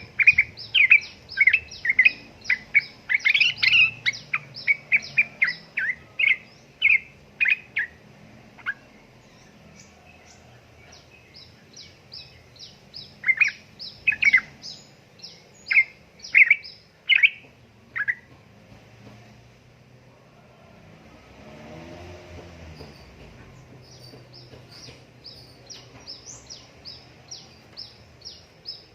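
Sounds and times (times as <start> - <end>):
bulbul chattering calls: 0.0 - 8.0, 8.6 - 18.3.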